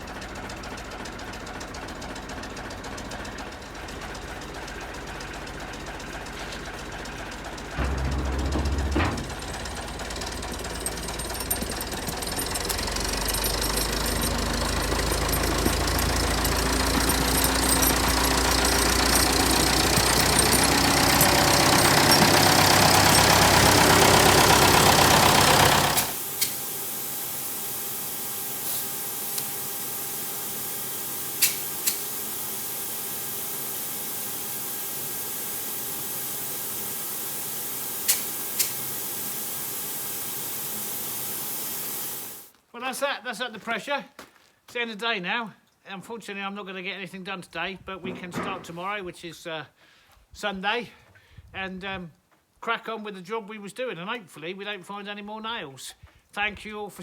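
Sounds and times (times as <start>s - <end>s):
air compressor running: 4.4s - 42.5s
air hiss: 28.0s - 42.4s.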